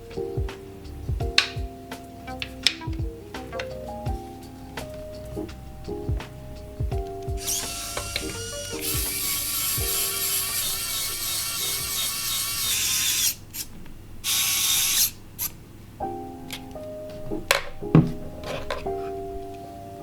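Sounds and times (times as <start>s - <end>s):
screwdriver ratcheting whir: 7.4s - 15.5s.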